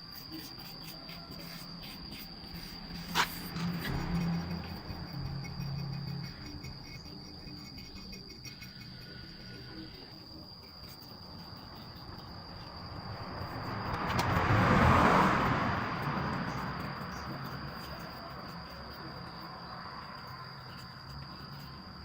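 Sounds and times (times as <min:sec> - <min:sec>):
insects chirring: 0:00.0 - 0:22.0
vehicle passing by: 0:00.4 - 0:07.0, 0:11.5 - 0:21.2.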